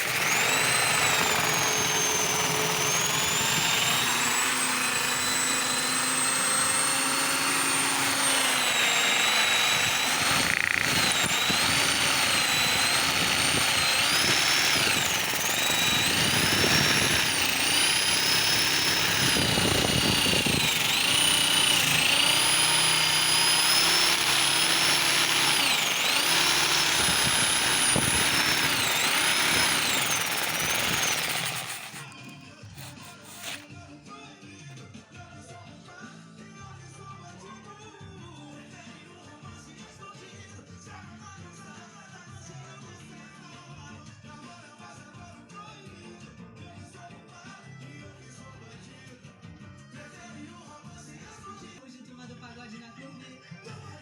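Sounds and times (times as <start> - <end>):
electric drill whining: 0.0 - 33.6.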